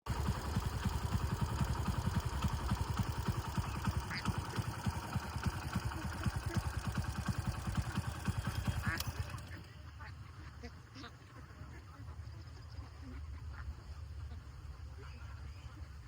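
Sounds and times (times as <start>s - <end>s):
rapid low throbbing: 0.1s - 9.4s
flock of waterfowl calling: 3.0s - 5.0s, 7.9s - 16.0s.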